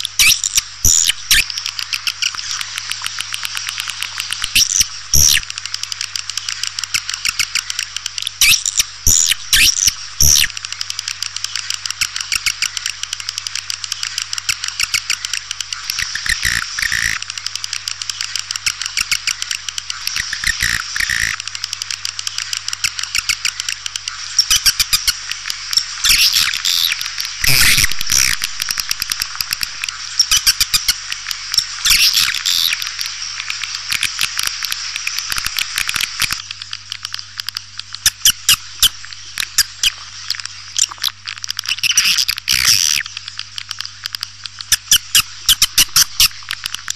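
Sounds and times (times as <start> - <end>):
faint electrical hum: 0.0 - 46.9
swiftlet twittering chirps: 0.2 - 2.6, 16.0 - 17.2, 20.0 - 21.4, 24.3 - 32.9.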